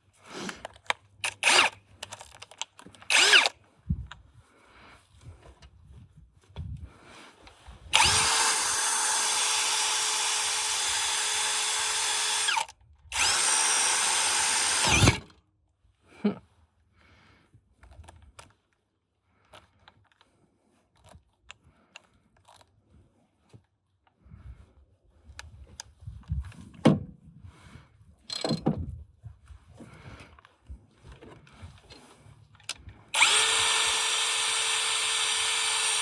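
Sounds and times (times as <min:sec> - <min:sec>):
faint clicks and handling sounds: 0:00.0 - 0:04.4, 0:17.6 - 0:24.2, 0:25.2 - 0:26.8, 0:29.5 - 0:33.1
electric power tool motor running: 0:03.1 - 0:03.5, 0:07.9 - 0:15.3, 0:33.2 - 0:36.0.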